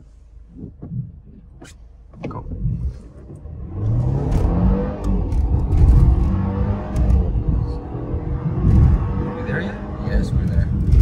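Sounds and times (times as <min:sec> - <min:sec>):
car engine accelerating: 0:02.2 - 0:11.0.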